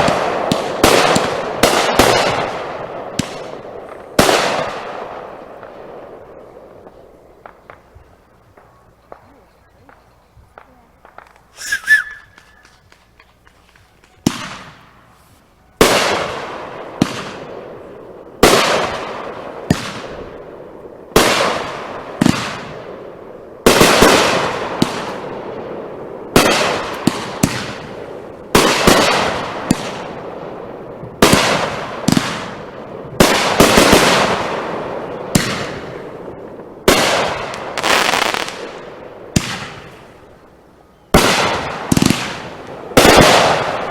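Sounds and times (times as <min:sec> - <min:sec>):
fireworks bangs: 0:00.0 - 0:15.2, 0:15.8 - 0:40.4, 0:41.1 - 0:43.9
short hiss: 0:11.3 - 0:13.7.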